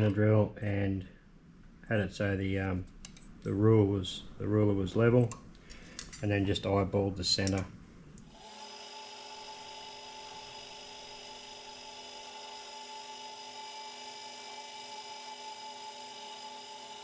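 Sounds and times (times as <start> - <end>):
milling machine spindle whine: 8.4 - 17.0.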